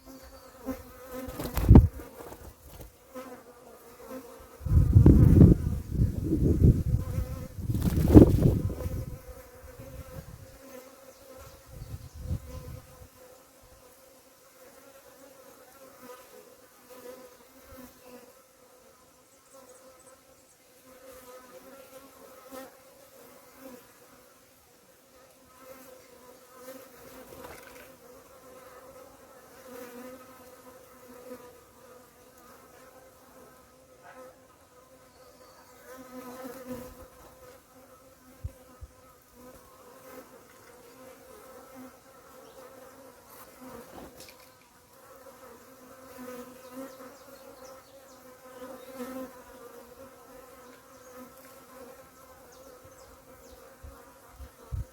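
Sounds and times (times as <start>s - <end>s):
bees buzzing: 0.0s - 13.4s, 25.5s - 54.9s
low rumble on microphone: 4.6s - 9.2s.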